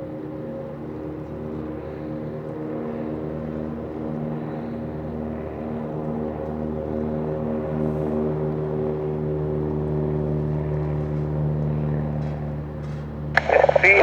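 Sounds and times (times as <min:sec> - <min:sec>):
aircraft engine humming: 0:13.4 - 0:14.0.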